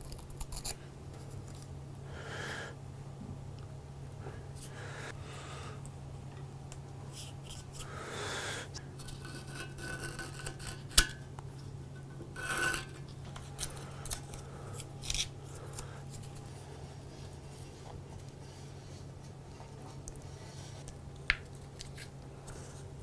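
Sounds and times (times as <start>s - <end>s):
scraping and rubbing: 8.9s - 23.0s.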